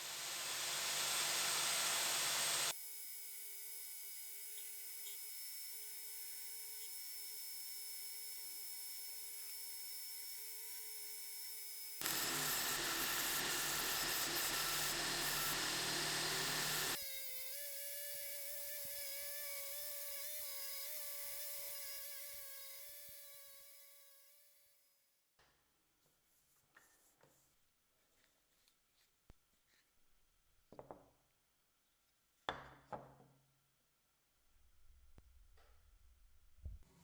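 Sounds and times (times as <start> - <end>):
electric power tool whining: 0.0 - 17.8.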